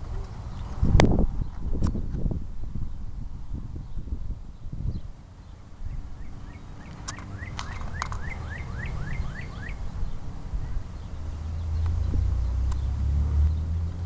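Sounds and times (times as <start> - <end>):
bird calling short rising notes: 5.9 - 13.8.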